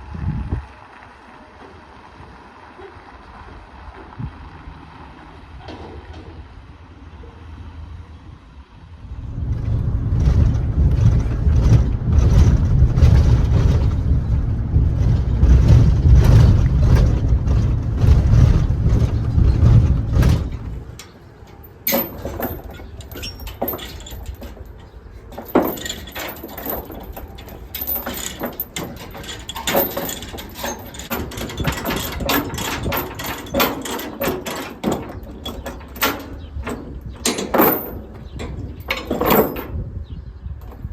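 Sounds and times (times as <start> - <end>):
deep machine rumble: 3.3 - 40.9
metal clanks and knocks: 9.3 - 40.0.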